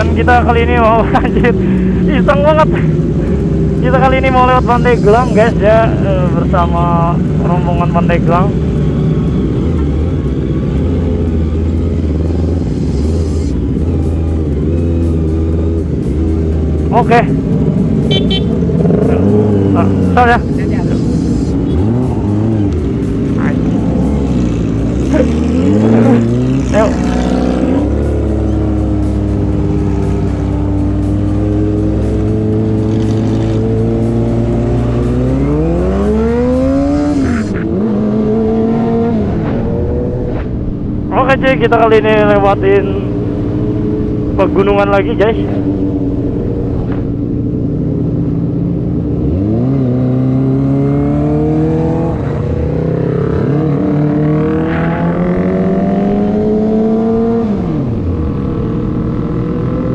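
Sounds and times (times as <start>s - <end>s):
motorcycle engine at low revs: 0.0s - 59.9s.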